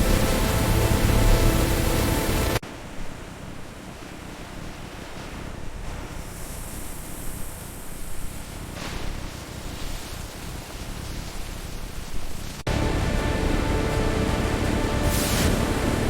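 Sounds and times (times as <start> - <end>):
low rumble: 0.0 - 2.6, 12.7 - 16.0
steady rushing noise: 0.0 - 16.0.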